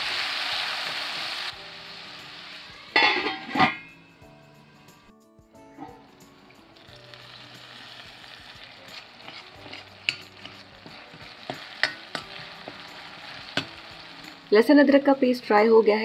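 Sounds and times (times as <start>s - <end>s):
tomatoes sizzling in hot oil: 0.0s - 3.6s, 6.2s - 16.0s
steel ladle clinking on pan: 3.0s - 3.9s, 11.5s - 12.4s.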